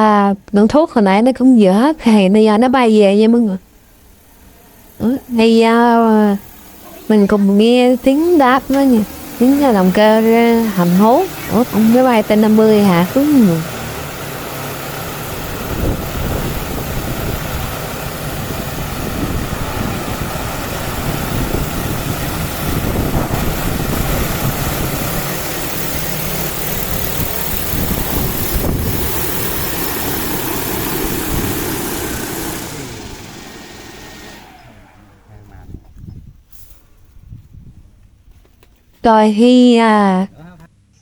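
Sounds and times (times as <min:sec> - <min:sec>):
downwash buffeting microphone: 0:00.0 - 0:38.4
drone rotors running loud: 0:01.2 - 0:35.8.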